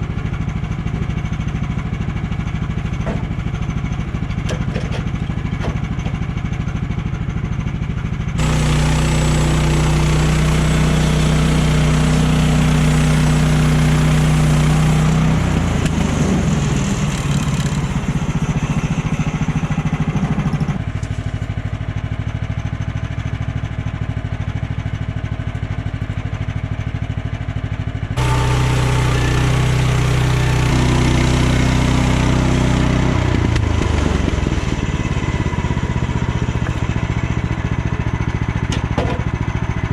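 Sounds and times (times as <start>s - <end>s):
sawmill gas engine running: 0.0s - 39.9s
band saw blade cutting: 8.4s - 19.7s.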